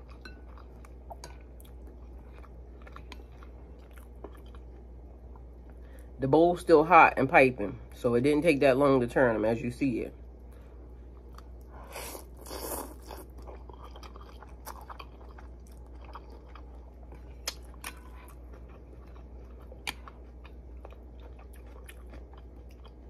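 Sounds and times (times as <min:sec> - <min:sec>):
person chewing noodles: 0:00.0 - 0:05.8, 0:10.5 - 0:23.0
steady low hum: 0:00.0 - 0:23.0.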